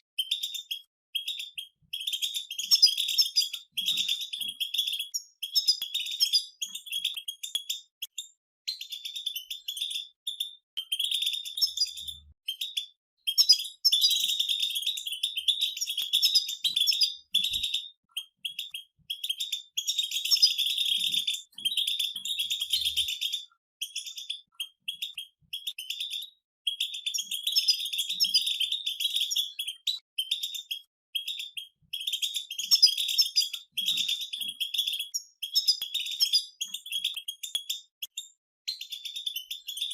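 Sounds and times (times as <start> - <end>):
goldfinches singing: 8.8 - 26.2.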